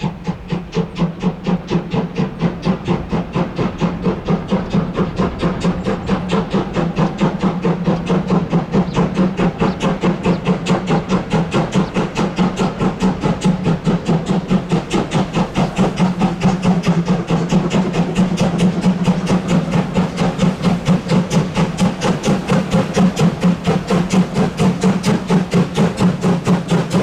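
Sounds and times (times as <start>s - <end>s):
model steam locomotive chuffing: 0.0s - 27.0s.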